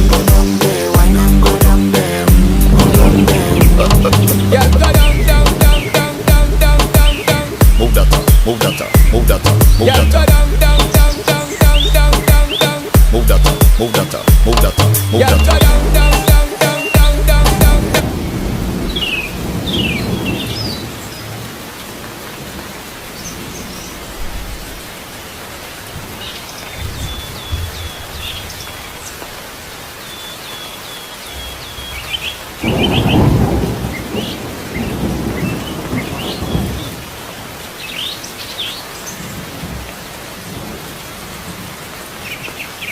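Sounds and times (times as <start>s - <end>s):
steady rain: 0.0s - 42.9s
thunder rolling: 2.3s - 6.6s, 17.4s - 21.0s, 32.6s - 37.0s
small birds chirping: 3.0s - 17.4s, 18.4s - 21.4s, 23.1s - 24.4s, 26.1s - 39.6s, 42.1s - 42.9s.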